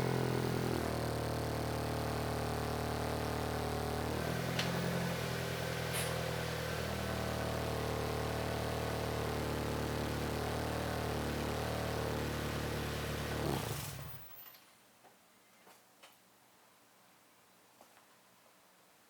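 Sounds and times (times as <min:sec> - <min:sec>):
car engine idling: 0:00.0 - 0:14.2.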